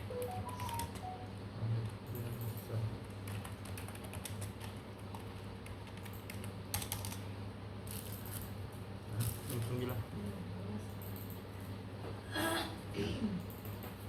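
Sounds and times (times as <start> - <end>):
rapid key clicks: 0.0 - 7.2.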